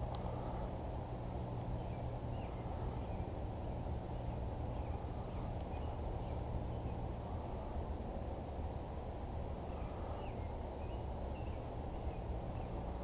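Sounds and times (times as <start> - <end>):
low rumbling noise: 0.0 - 13.0
faint bird chirps: 1.7 - 7.8, 9.6 - 13.0.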